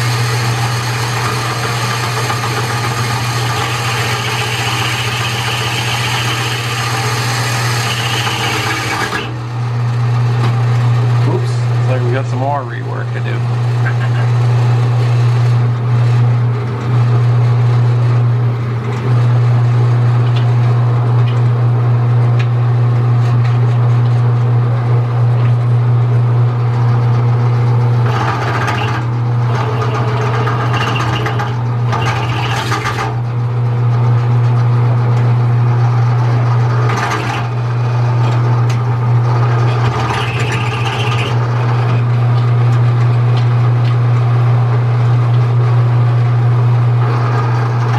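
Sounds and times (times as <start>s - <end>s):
low machine drone: 9.0s - 23.0s.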